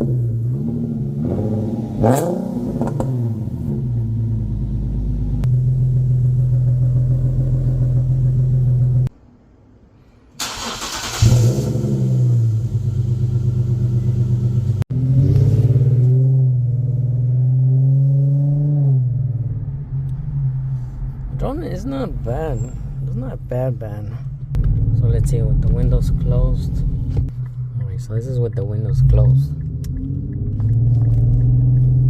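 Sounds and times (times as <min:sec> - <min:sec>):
car engine exhaust revving: 0:00.0 - 0:09.1, 0:10.4 - 0:21.5, 0:28.8 - 0:32.0.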